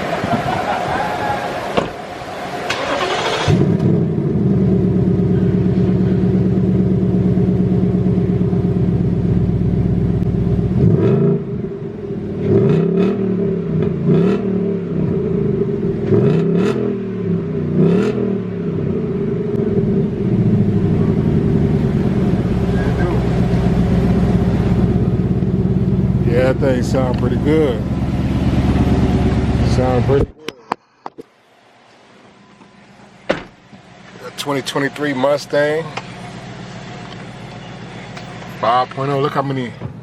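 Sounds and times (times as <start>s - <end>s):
car engine starting and revving: 1.6s - 30.4s.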